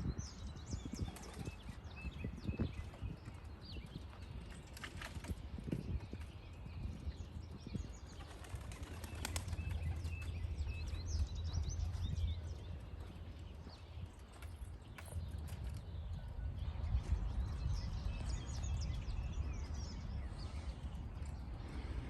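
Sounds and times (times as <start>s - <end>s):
pigeon wings flapping: 8.2s - 10.3s.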